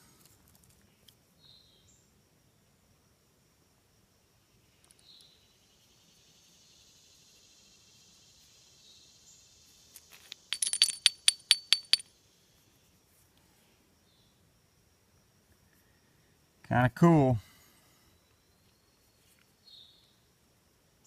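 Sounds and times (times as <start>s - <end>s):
high insect drone: 4.0s - 16.4s
hard objects clinking together: 10.0s - 12.0s.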